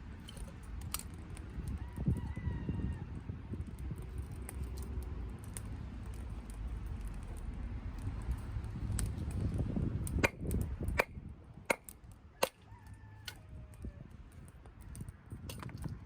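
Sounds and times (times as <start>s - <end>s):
low rumble of flame: 0.0s - 16.0s
wood fire popping: 3.5s - 12.6s.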